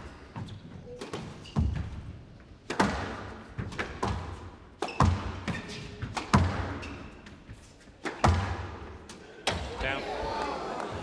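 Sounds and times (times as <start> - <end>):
squash ball hit by rackets: 2.6 - 7.4, 8.0 - 9.7.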